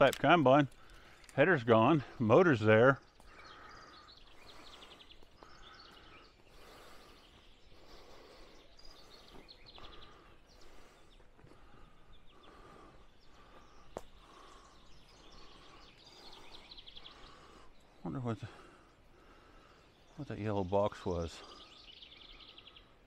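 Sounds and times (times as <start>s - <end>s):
songbirds singing trills: 0.0s - 23.0s.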